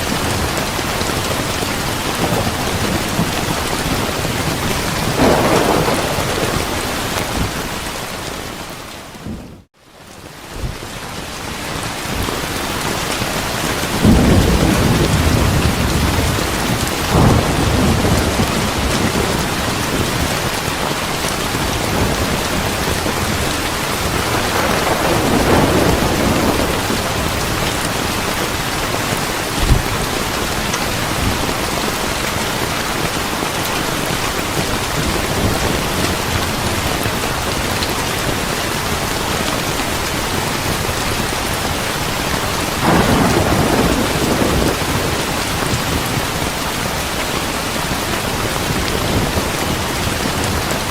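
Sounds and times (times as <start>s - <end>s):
heavy rain: 0.0s - 50.9s
rolling thunder: 1.2s - 9.7s, 13.8s - 20.9s, 21.5s - 31.9s, 42.6s - 46.5s
sharp thunderclap: 2.2s - 8.1s, 13.9s - 20.7s, 21.6s - 28.6s, 29.4s - 30.5s, 42.8s - 46.3s.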